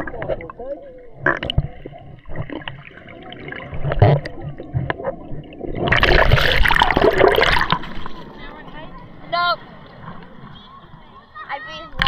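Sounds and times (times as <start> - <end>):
crackles and clicks: 0.0 - 9.2
muffled underwater gurgling: 0.0 - 11.3
rush of splashing water: 2.3 - 11.1.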